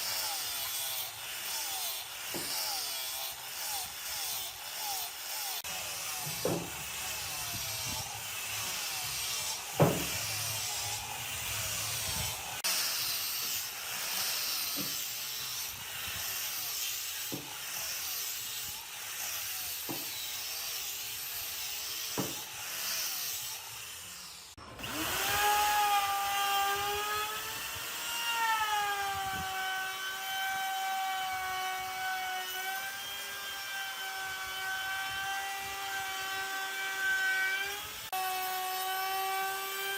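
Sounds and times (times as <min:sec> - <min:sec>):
power tool motor whining: 0:00.0 - 0:39.9
scraping wood: 0:06.2 - 0:12.7
sharp knock on wood: 0:09.8 - 0:10.1.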